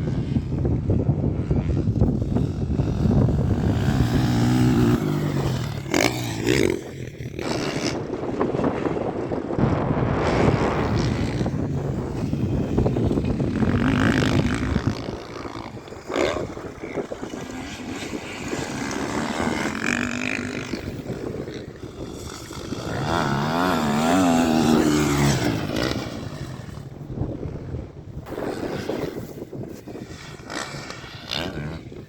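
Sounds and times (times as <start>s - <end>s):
motorcycle engines revving: 0.0s - 32.0s.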